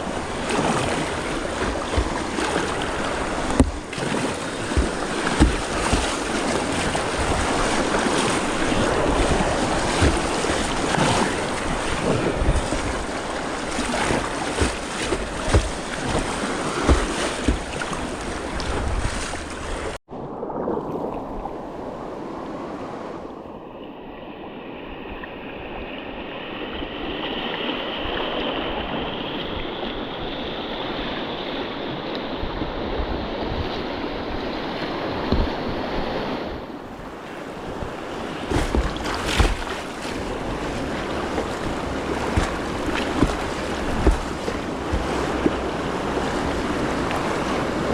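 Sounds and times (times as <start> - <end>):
river whitewater rushing: 0.0 - 20.0, 37.5 - 47.9
wind buffeting microphone: 0.0 - 23.4, 32.2 - 47.9
low thumps: 1.5 - 7.6, 14.2 - 20.0, 40.4 - 46.7.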